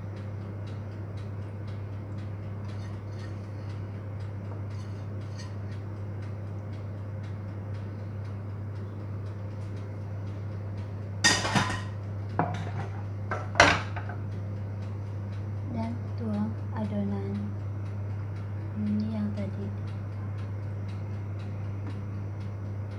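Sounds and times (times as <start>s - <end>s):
steady low hum: 0.0s - 22.9s
dish clinking: 11.2s - 14.2s
kitchenware clattering: 11.3s - 14.2s.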